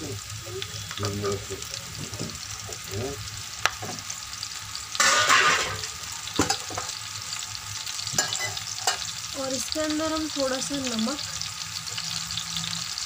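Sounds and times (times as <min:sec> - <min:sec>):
mushrooms sizzling in oil: 0:00.0 - 0:13.0
spatula scraping pan: 0:05.0 - 0:07.0.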